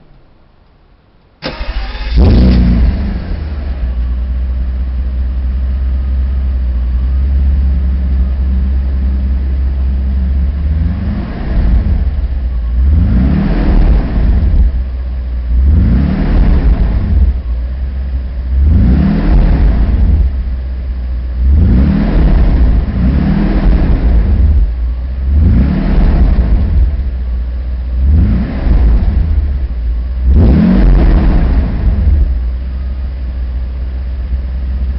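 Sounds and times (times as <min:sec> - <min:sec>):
car engine starting and idling: 0:00.0 - 0:34.9
engine revving: 0:01.4 - 0:04.1, 0:07.0 - 0:17.6, 0:18.4 - 0:20.5, 0:21.3 - 0:27.2, 0:28.0 - 0:32.5.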